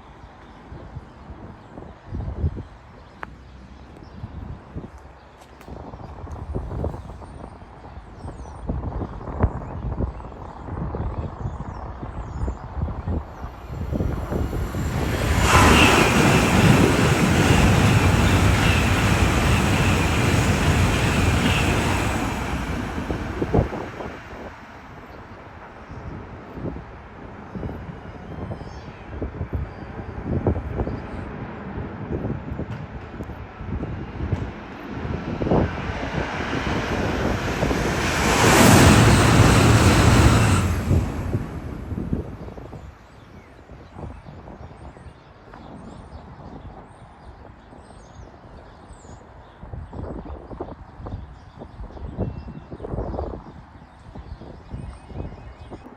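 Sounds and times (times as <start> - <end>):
wind buffeting microphone: 5.6 - 55.9
train passing at speed: 13.2 - 43.4.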